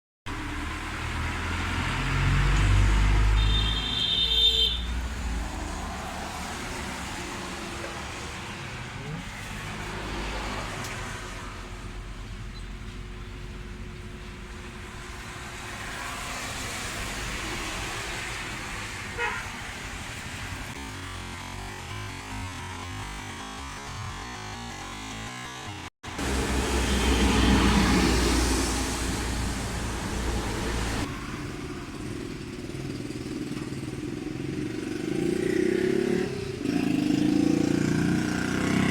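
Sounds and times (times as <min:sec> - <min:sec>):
vehicle passing loudly: 0:00.3 - 0:04.0, 0:04.8 - 0:12.2, 0:26.1 - 0:33.3, 0:34.4 - 0:38.9
road traffic: 0:00.3 - 0:38.9
short car horn toot: 0:03.4 - 0:04.9.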